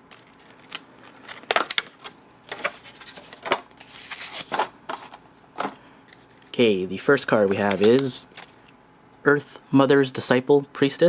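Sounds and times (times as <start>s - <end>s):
card packaging clicks and crinkles: 0.0s - 6.5s, 7.5s - 8.6s.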